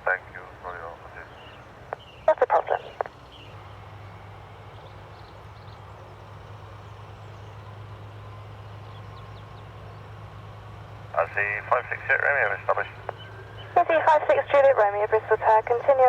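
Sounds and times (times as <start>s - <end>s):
jet engines at takeoff power: 0.0s - 16.0s.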